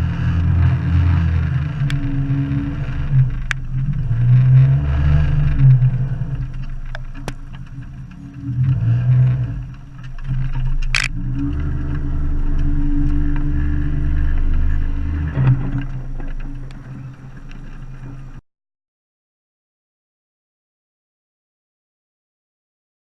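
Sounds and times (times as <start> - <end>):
boat motor running: 0.0 - 18.4.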